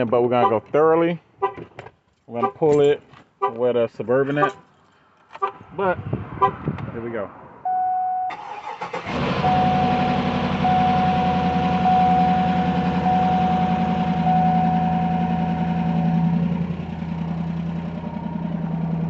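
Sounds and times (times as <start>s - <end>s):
engine idling: 8.4s - 19.0s
high warning chime: 9.5s - 16.3s.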